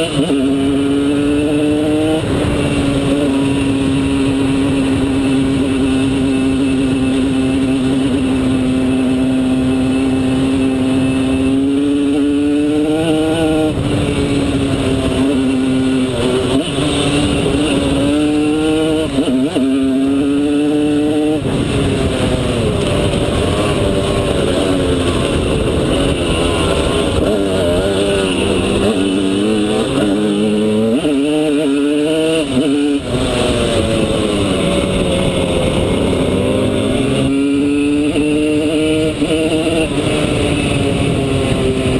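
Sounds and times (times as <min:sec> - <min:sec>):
two-stroke motorcycle engine revving: 0:00.0 - 0:41.9.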